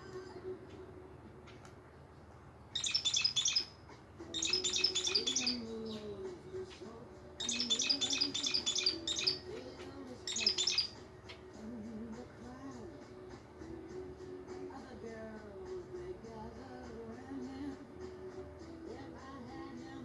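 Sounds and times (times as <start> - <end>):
budgerigar chirping: 2.7 - 6.1, 7.4 - 11.4.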